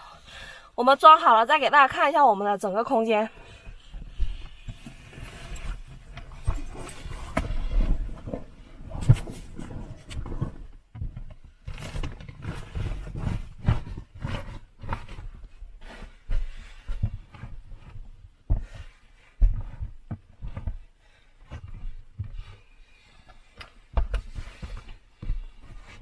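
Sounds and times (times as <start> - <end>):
microphone handling noise: 3.4 - 20.8.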